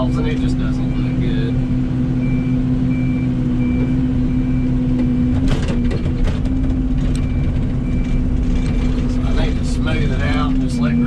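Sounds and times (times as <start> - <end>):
excavator diesel engine running: 0.0 - 11.0
travel alarm beeping: 2.2 - 5.9, 7.1 - 8.9.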